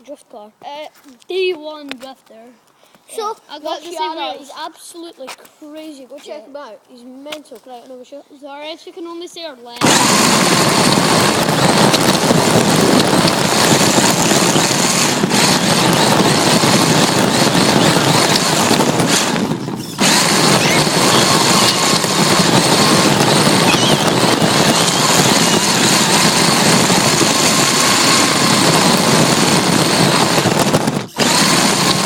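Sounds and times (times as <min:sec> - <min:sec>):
rc car motor and tyres rushing: 0:09.8 - 0:32.0.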